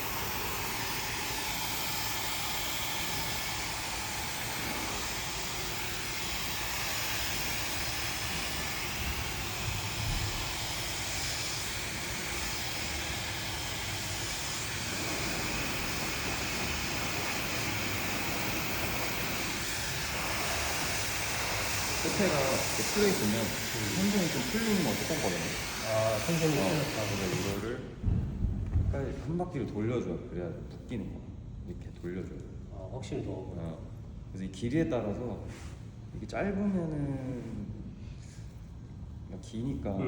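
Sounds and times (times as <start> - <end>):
hair dryer blowing: 0.0 - 29.1.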